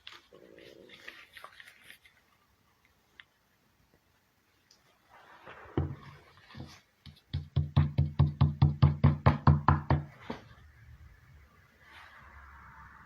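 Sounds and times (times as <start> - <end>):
rapid knocks: 7.0 - 10.1.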